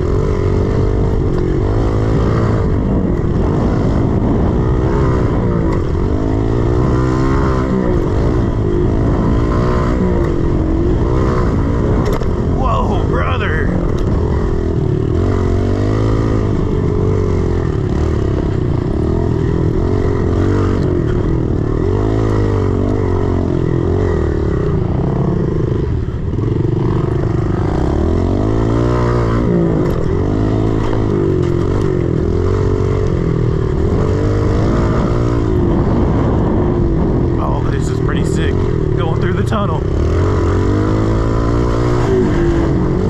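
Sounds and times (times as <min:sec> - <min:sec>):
pit bike engine revving: 0:00.0 - 0:43.0.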